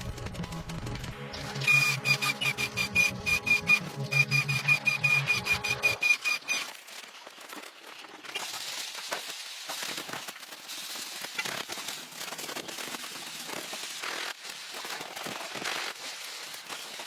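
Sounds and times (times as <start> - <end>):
music with beeping tone: 0.0 - 6.5
dense irregular crackling: 0.0 - 17.0.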